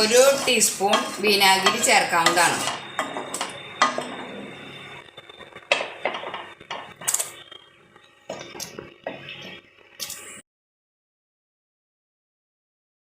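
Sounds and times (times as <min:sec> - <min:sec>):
spoon scraping cooking pot: 0:00.0 - 0:04.7.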